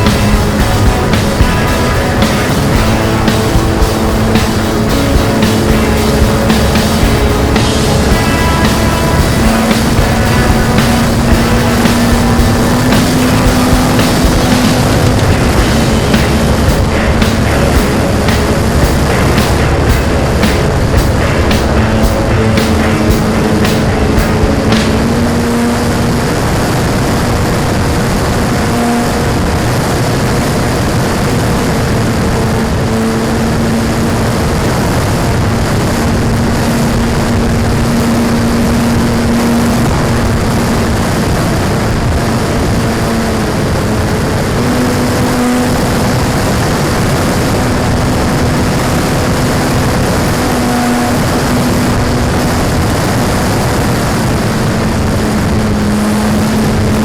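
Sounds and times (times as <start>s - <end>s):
constant rushing noise: 0.0s - 57.0s.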